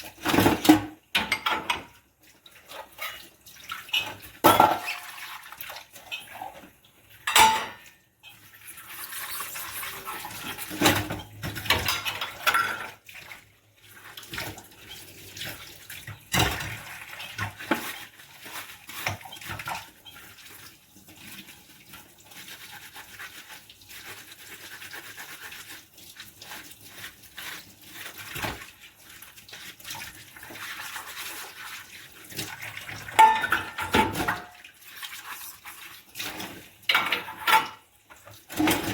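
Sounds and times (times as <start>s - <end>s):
dish scrubbing: 0.0s - 38.9s
dishes clinking: 0.3s - 2.0s, 4.4s - 5.0s, 7.2s - 7.9s, 10.8s - 13.0s, 33.1s - 34.6s.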